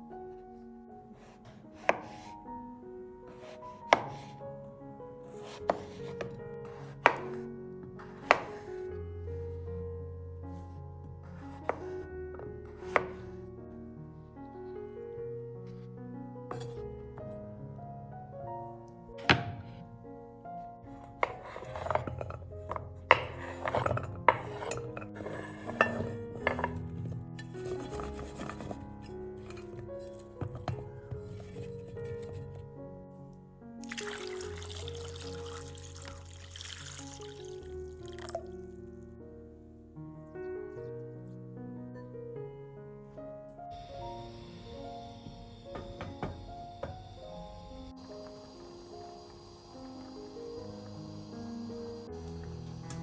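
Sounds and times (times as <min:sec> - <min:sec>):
soft background music: 0:00.0 - 0:53.0
knife cutting on a board: 0:01.2 - 0:02.4, 0:03.3 - 0:04.3, 0:05.4 - 0:07.4, 0:08.1 - 0:08.7, 0:11.3 - 0:12.0, 0:12.7 - 0:13.3, 0:21.2 - 0:26.8
utensils clinking against dishes: 0:21.2 - 0:32.0.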